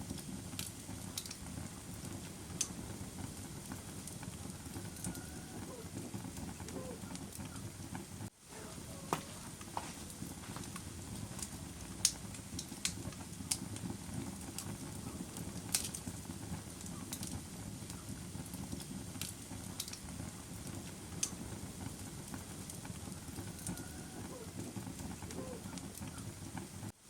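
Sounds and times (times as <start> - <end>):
fire popping and crackling: 0.0 - 27.0
wood fire low rush: 0.0 - 27.0.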